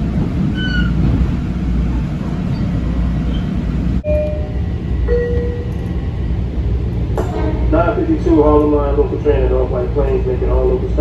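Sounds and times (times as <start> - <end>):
train interior rumble: 0.0 - 11.0
wheels squealing: 0.4 - 1.2.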